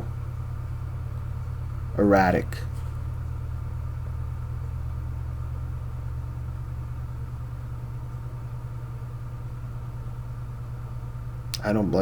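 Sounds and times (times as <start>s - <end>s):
machine humming: 0.0s - 8.6s.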